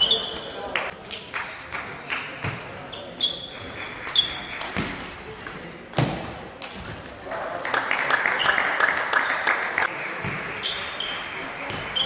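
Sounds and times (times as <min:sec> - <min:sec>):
shoe squeaks on floor: 0:00.0 - 0:00.6, 0:02.9 - 0:04.5, 0:10.6 - 0:11.2, 0:11.8 - 0:12.0.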